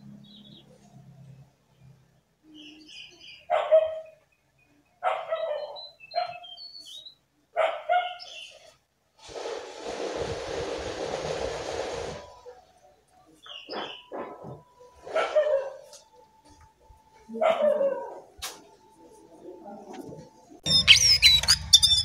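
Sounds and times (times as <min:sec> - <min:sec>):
bird bark-like calls: 0:02.5 - 0:08.8, 0:13.4 - 0:15.9, 0:20.6 - 0:22.0
harsh hissing noise: 0:09.2 - 0:12.4.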